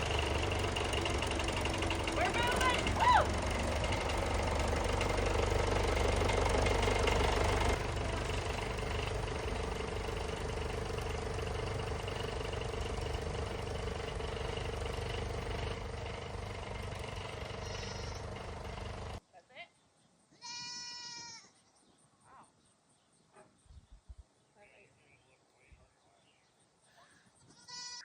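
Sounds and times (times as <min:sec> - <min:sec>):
tractor diesel engine running: 0:00.0 - 0:19.2.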